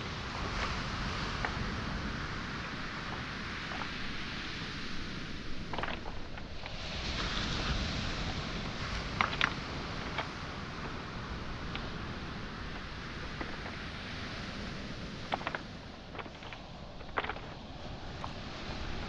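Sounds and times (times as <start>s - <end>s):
waves rushing on shore: 0.0s - 19.0s
footsteps on pebbles: 1.4s - 1.7s, 2.6s - 4.4s, 5.4s - 14.0s, 15.1s - 19.0s
stones clacking: 1.4s - 4.5s, 5.2s - 19.0s.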